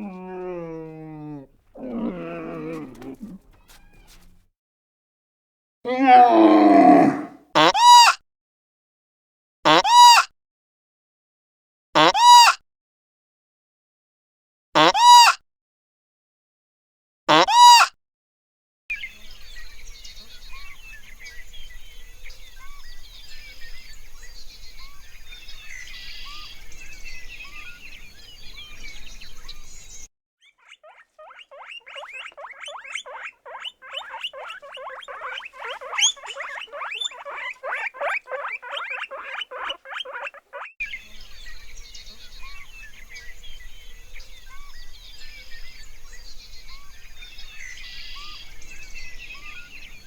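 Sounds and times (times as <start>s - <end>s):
animal squeaky calls: 0.0s - 4.4s, 30.4s - 40.8s
birds chirping: 0.0s - 4.4s, 5.9s - 7.4s, 19.0s - 50.0s.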